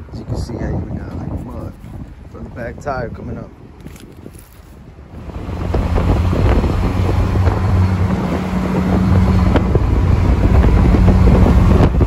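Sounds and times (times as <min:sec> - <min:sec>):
wind on microphone: 0:00.0 - 0:12.0
vehicle engine low hum: 0:05.1 - 0:12.0.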